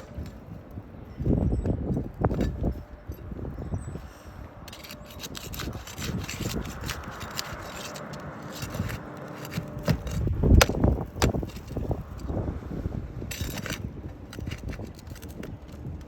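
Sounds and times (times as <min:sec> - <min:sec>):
hand tool scraping shingles: 0:04.7 - 0:12.4, 0:13.3 - 0:16.0.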